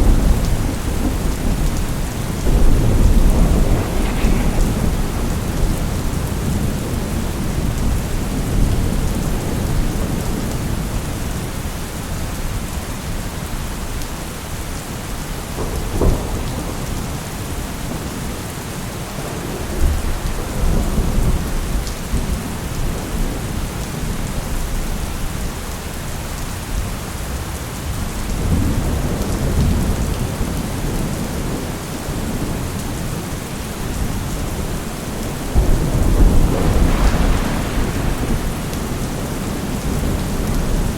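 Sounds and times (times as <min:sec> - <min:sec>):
thunder rumbling: 0:00.0 - 0:10.9, 0:15.5 - 0:25.3, 0:28.3 - 0:40.9
steady rain falling: 0:00.0 - 0:40.9.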